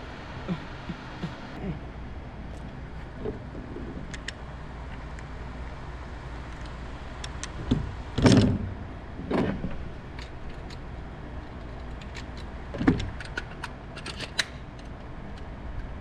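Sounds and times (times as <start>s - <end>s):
low background hum: 0.0s - 16.0s
light clicks and rattles: 9.3s - 15.9s.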